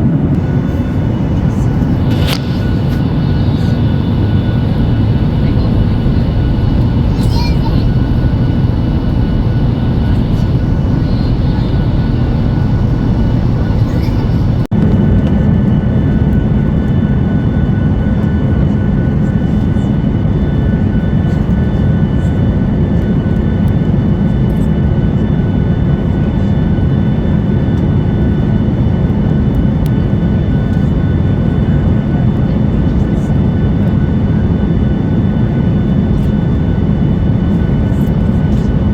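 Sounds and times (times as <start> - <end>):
aircraft cabin engine roar: 0.0 - 38.9
thin steady whining tones: 0.3 - 14.7.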